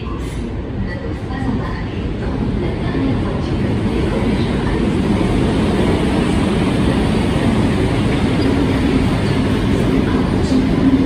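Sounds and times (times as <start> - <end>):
train wheels on rails: 0.1 - 11.0.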